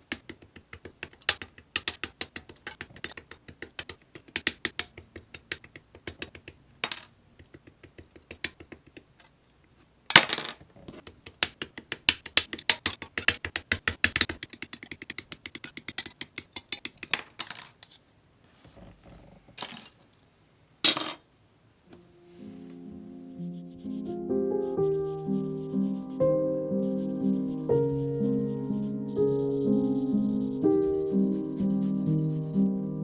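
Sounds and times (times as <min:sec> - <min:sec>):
small hard objects clicking: 0:11.3 - 0:17.3.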